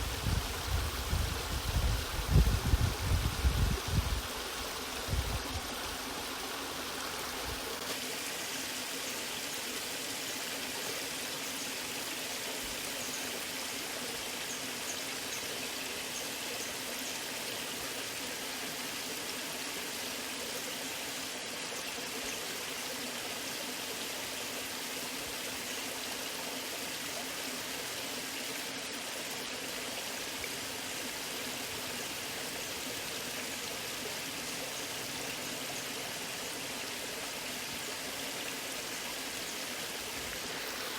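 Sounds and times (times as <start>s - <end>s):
water rushing and splashing: 0.0s - 14.4s, 23.0s - 40.9s.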